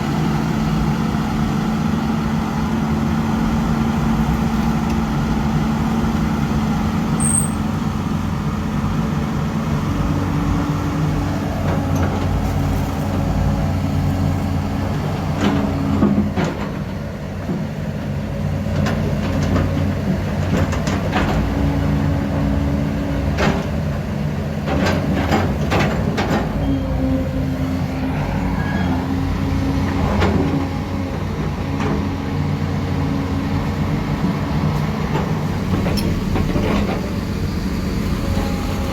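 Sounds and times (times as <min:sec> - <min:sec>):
heavy diesel machinery running: 0:00.0 - 0:38.9.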